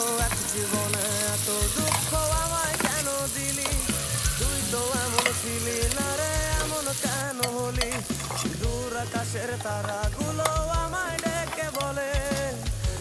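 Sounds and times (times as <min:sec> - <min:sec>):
background music: 0:00.0 - 0:13.0
food sizzling in hot oil: 0:00.0 - 0:13.0.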